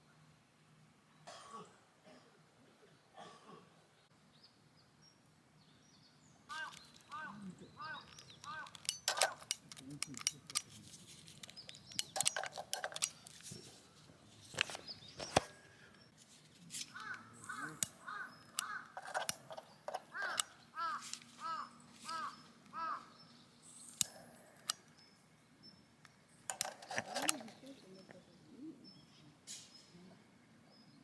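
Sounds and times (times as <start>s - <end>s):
crow cawing: 6.5s - 8.8s, 16.9s - 19.2s, 20.0s - 23.2s
sharp clicks or knocks: 8.1s - 10.7s, 17.8s - 21.2s, 26.5s - 27.6s.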